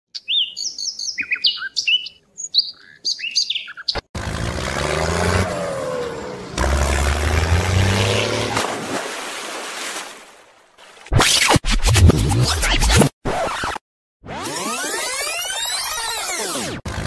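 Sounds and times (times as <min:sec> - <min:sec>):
small birds chirping: 0:00.1 - 0:04.1.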